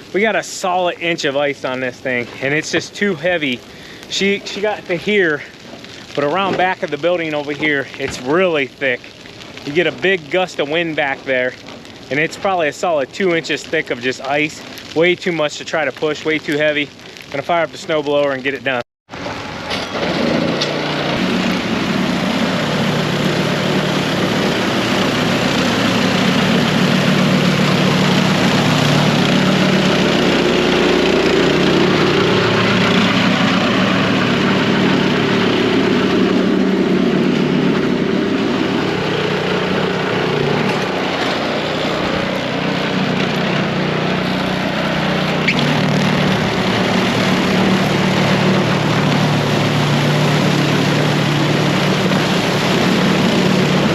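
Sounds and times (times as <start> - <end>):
snow blower engine running: 19.2 - 53.9.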